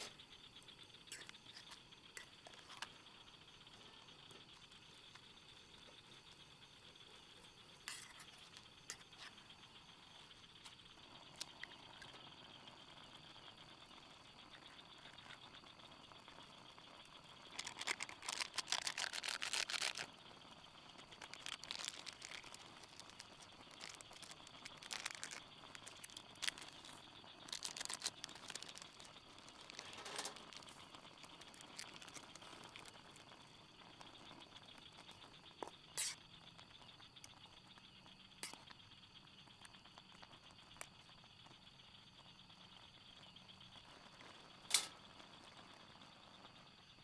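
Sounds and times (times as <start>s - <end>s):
rustling and crinkling: 17.5s - 20.1s, 21.0s - 36.2s.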